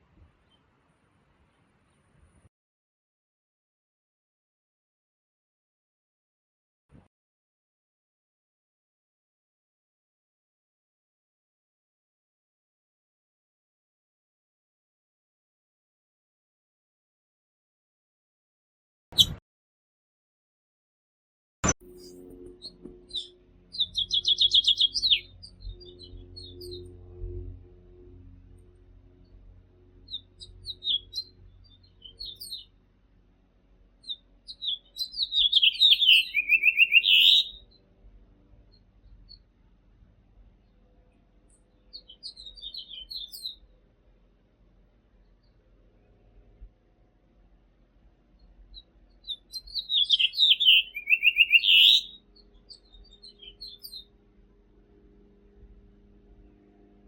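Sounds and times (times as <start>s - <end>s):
finch singing: 21.9s - 27.0s, 30.0s - 32.8s, 34.0s - 37.8s, 41.7s - 43.6s, 48.4s - 54.1s.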